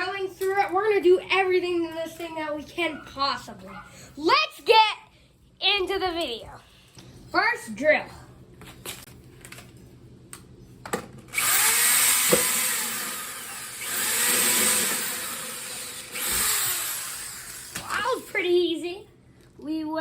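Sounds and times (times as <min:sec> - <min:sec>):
power drill boring into plastic: 0:11.3 - 0:17.8.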